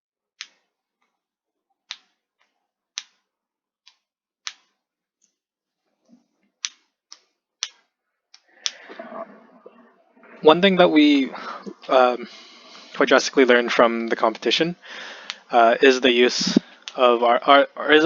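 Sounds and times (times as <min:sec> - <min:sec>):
sharp clicks: 0:03.9 - 0:05.4.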